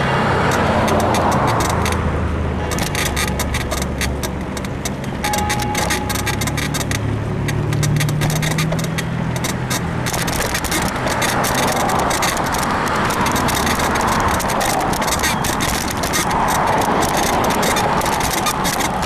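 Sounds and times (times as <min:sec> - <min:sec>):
bicycle frame clicking and creaking: 0:00.0 - 0:19.0
motor vehicle low hum: 0:00.0 - 0:19.0
wind and road noise: 0:00.0 - 0:19.0.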